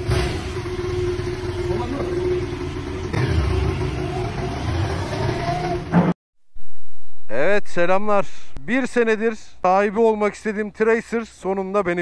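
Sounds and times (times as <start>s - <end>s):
motorcycle engine at low revs: 0.0s - 6.1s.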